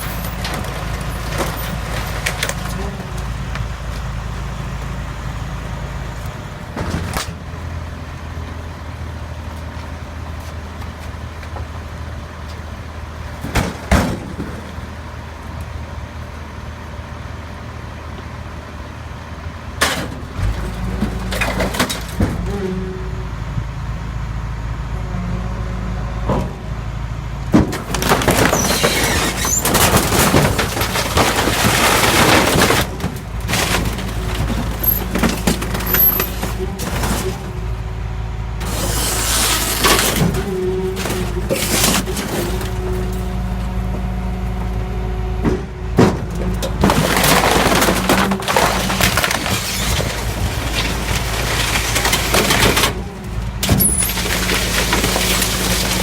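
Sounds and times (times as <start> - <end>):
truck engine running: 0.0 - 56.0
compactor crunching and cracking: 27.5 - 37.9, 38.6 - 44.8, 45.4 - 56.0.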